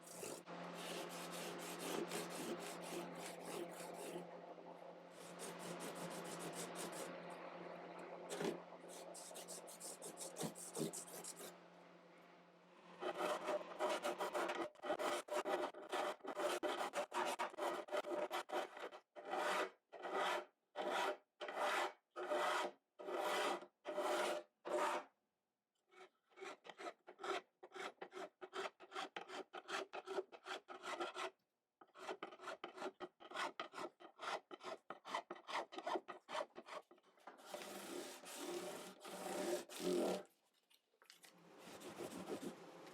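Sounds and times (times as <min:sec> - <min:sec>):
filing or sanding wood: 0:00.0 - 0:04.2, 0:05.1 - 0:07.1, 0:08.3 - 0:11.5, 0:13.0 - 0:25.0, 0:32.0 - 0:40.2, 0:41.6 - 0:42.6.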